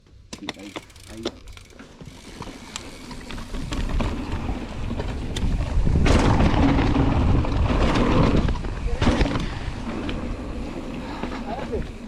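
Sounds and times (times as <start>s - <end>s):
bike rattling on dirt trail: 0.0s - 12.0s
wind buffeting microphone: 3.4s - 12.0s.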